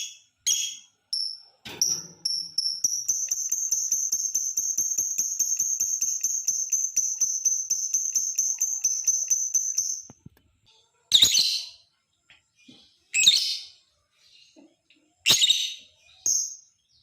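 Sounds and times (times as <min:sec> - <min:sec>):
lovebird chattering trill: 0:00.0 - 0:10.1.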